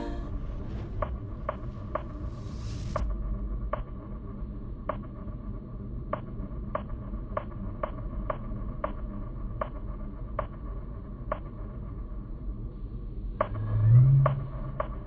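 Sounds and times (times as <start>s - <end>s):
low steady hum: 0.0s - 6.0s.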